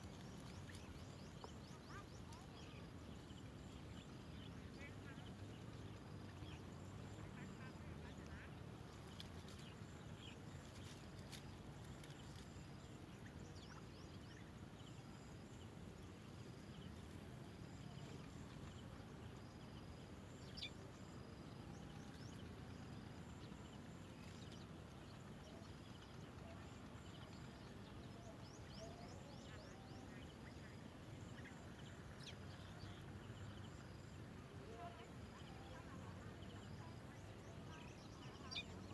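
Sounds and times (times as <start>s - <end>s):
faint outdoor hiss: 0.0s - 38.9s.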